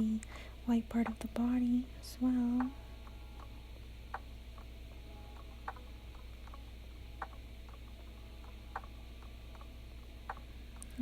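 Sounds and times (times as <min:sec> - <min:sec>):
steady low hum: 0:00.0 - 0:11.0
quiet regular ticking: 0:00.1 - 0:11.0.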